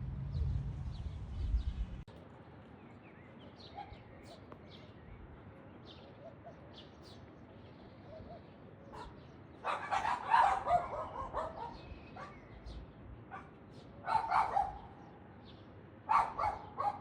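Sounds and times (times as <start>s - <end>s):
loud low wind rumble: 0.0s - 2.1s
small birds chirping: 0.0s - 17.0s.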